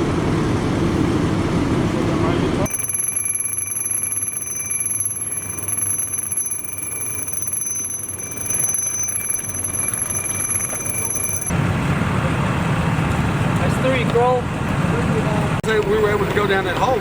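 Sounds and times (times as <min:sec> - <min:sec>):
high-pitched electronic tone: 0:02.7 - 0:11.5.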